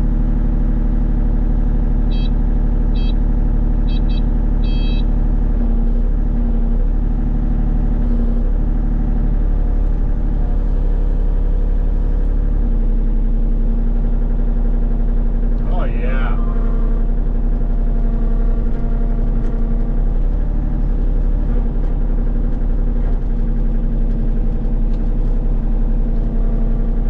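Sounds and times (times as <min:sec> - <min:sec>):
excavator diesel engine running: 0:00.0 - 0:27.0
short high beeps: 0:02.1 - 0:02.4, 0:03.0 - 0:03.2, 0:03.9 - 0:05.1.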